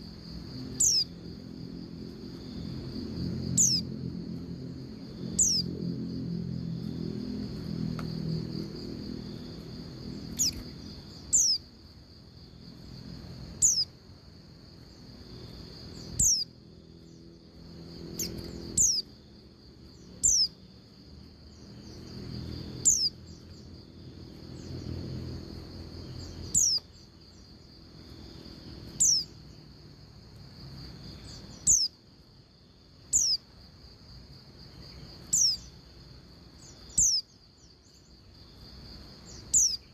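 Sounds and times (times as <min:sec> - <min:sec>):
steady high hum: 0:00.0 - 0:39.9
bird high thin calls: 0:00.8 - 0:01.1, 0:05.4 - 0:05.6, 0:10.4 - 0:10.7, 0:11.3 - 0:11.6, 0:13.6 - 0:13.9, 0:16.2 - 0:16.5.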